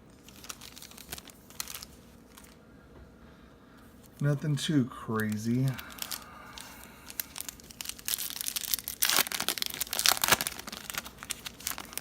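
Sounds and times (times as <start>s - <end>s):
foil wrapper crinkling and tearing: 0.0s - 2.6s, 5.2s - 12.0s.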